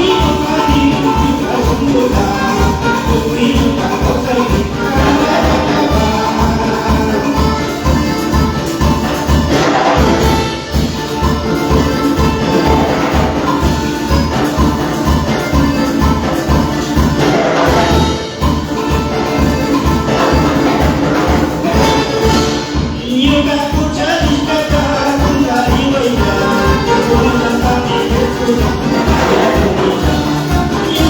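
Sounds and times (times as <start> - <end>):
instrumental worship band music: 0.0 - 31.0.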